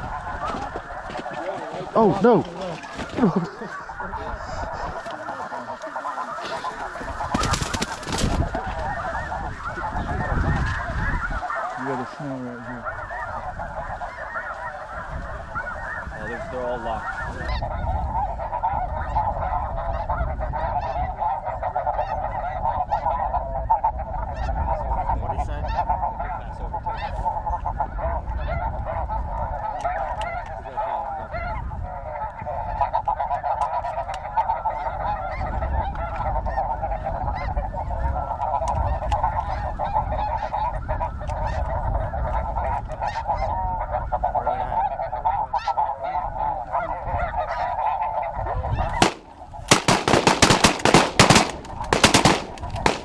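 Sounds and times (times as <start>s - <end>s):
flock of geese honking: 0.0s - 53.0s
shotguns firing: 49.0s - 53.0s.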